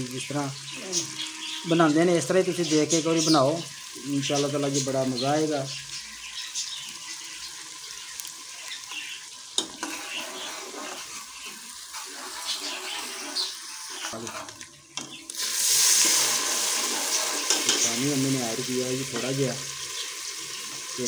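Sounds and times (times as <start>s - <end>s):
onion and garlic sizzling in ghee: 0.0s - 21.0s
metal ladle scraping pot: 9.6s - 18.0s.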